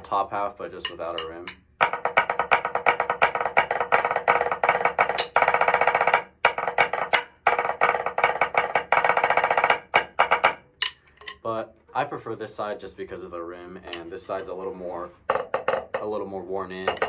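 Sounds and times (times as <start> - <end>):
drumsticks on practice pad: 0.7 - 1.7, 5.1 - 5.4, 10.0 - 11.5.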